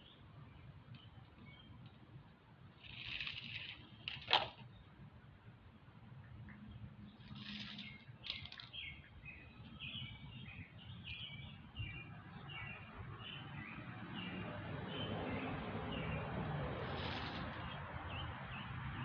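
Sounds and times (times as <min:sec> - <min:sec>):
bird chirping: 0:00.0 - 0:01.9, 0:06.5 - 0:16.3.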